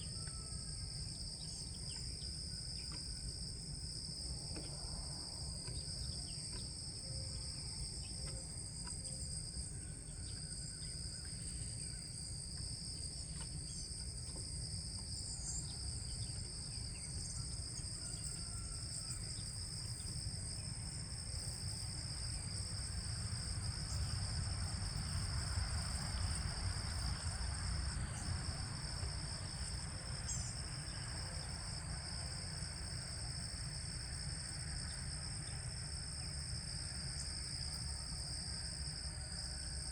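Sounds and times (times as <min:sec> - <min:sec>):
insect chorus trilling: 0:00.0 - 0:39.9.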